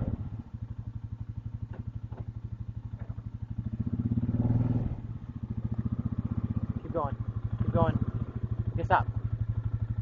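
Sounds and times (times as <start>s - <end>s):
engine running in rapid pulse: 0.0s - 0.5s, 3.0s - 10.0s.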